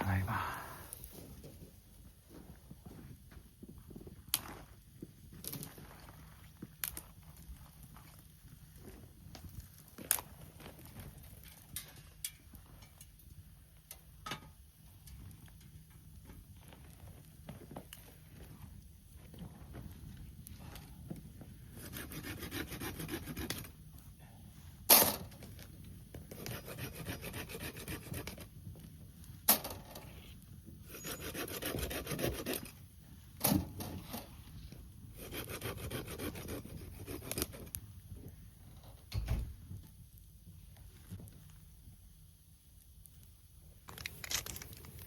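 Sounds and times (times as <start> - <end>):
hand saw cutting wood: 21.8 - 23.7, 26.3 - 28.4, 30.9 - 32.7, 35.2 - 37.7.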